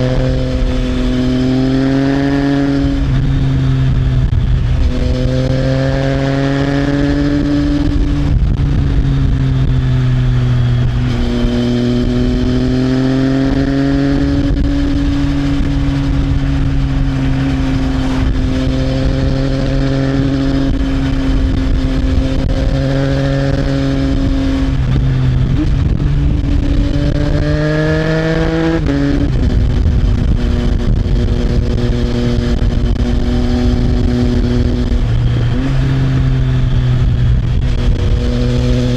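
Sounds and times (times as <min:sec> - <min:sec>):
motorcycle engine revving: 0:00.0 - 0:38.9
wind noise rushing: 0:00.0 - 0:38.9.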